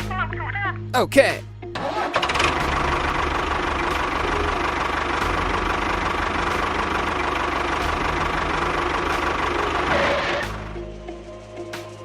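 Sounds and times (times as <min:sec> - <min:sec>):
small engine idling: 0:01.8 - 0:10.8.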